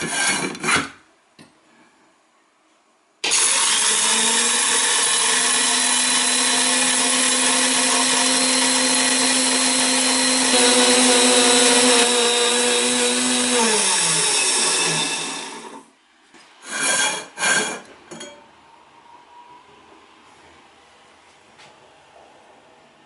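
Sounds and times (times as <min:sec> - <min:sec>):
mill motor whine and grinding: 0:03.2 - 0:15.9.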